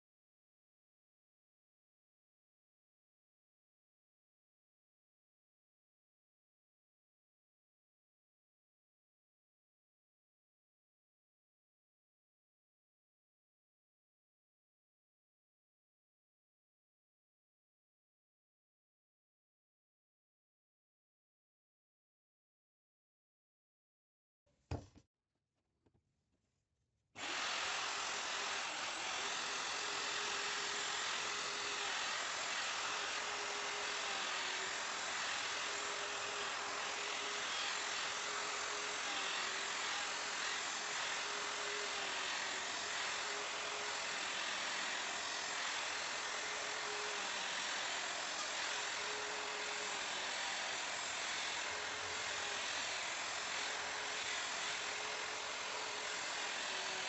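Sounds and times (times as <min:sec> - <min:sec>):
electric wood router running: 0:27.2 - 0:57.0.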